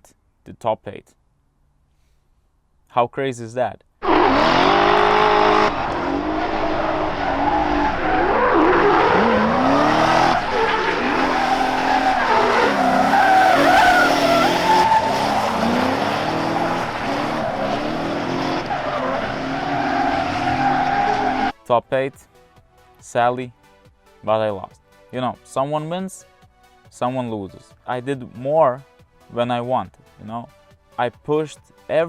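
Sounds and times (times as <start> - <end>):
car engines revving: 4.0 - 21.6
tyres squealing and skidding: 4.0 - 21.6.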